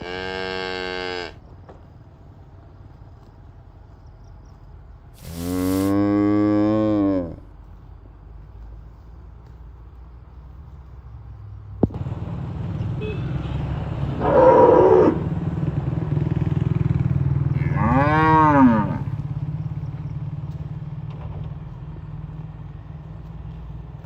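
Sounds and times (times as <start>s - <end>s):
cattle mooing: 0.0s - 1.4s, 5.2s - 7.5s, 14.1s - 15.3s, 17.4s - 19.2s.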